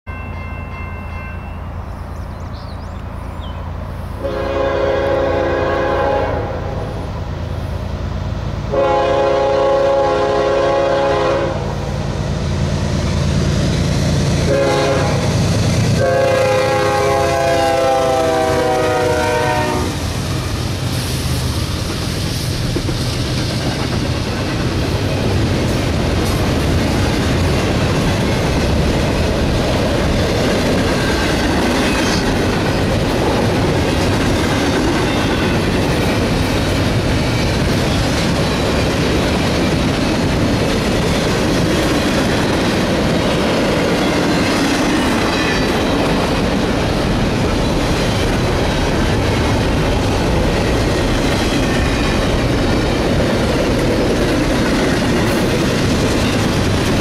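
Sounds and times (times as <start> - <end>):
locomotive horn blasts: 4.2 - 7.0, 8.7 - 11.8, 14.5 - 15.3, 16.0 - 20.0
wheel and rail noise: 11.2 - 57.0.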